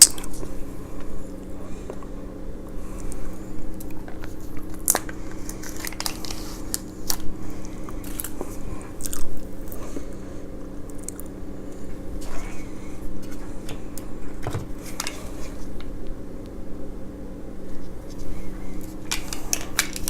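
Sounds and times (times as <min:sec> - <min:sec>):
low steady hum: 0:00.0 - 0:20.0
chewing crunchy food: 0:03.0 - 0:10.2, 0:10.8 - 0:12.3, 0:18.8 - 0:20.0.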